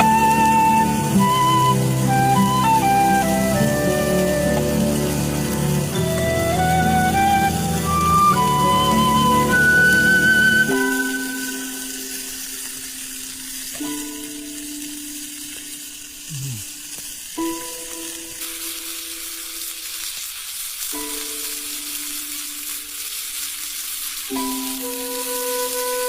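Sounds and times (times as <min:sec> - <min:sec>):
soft background music: 0:00.0 - 0:16.3, 0:17.3 - 0:20.2, 0:20.9 - 0:26.0
food sizzling in hot oil: 0:00.0 - 0:26.0.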